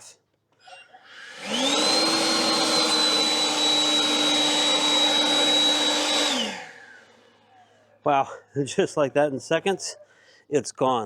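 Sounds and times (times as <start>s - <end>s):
leaf blower running: 1.0s - 7.6s.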